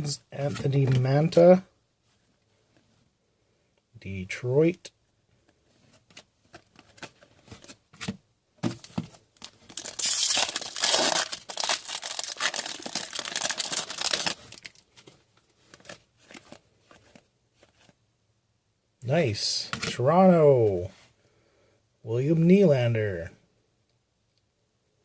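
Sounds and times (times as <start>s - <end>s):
cards clicking and rustling: 6.1s - 17.9s
wrapper tearing and crinkling: 9.4s - 14.9s.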